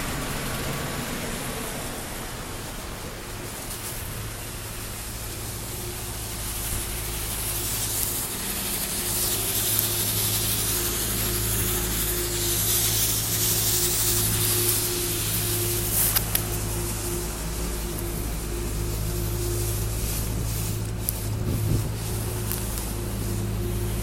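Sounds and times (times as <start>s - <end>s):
low engine hum: 0.0s - 24.0s
tyres hissing through slush: 0.0s - 24.0s.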